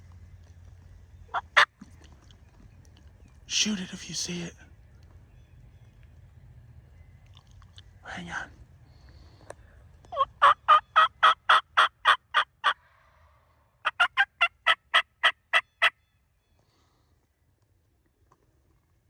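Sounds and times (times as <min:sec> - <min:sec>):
wild turkey yelping: 0:01.3 - 0:01.8, 0:10.1 - 0:12.8, 0:13.8 - 0:16.0.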